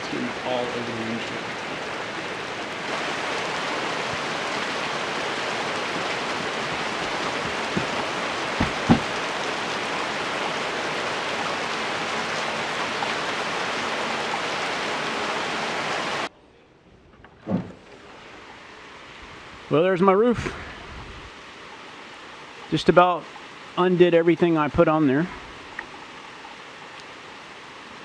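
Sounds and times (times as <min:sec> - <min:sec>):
heavy rain: 0:00.0 - 0:16.3
sharp taps: 0:08.6 - 0:09.2.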